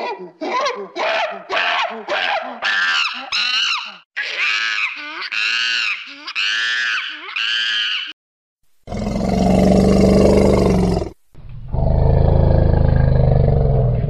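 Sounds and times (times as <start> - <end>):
monkey high-pitched scream: 0.5 - 8.2.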